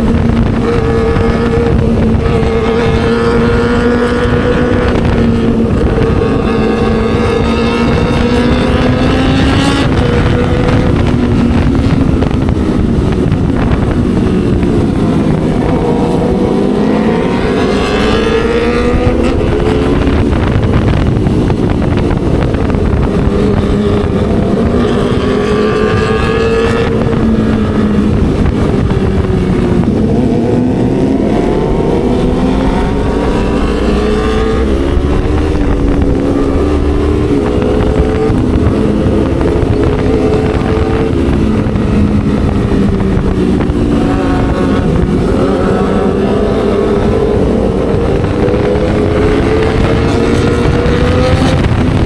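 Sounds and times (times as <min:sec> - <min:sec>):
motorcycle engine revving: 0:00.0 - 0:52.0
wind on microphone: 0:00.0 - 0:52.0.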